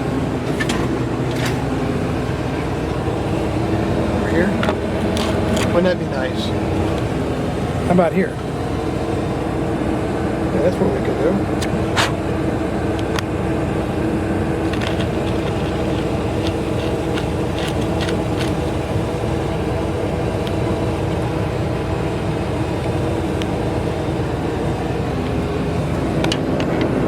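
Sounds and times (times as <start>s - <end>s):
earth-moving machine engine running: 0.0s - 27.0s.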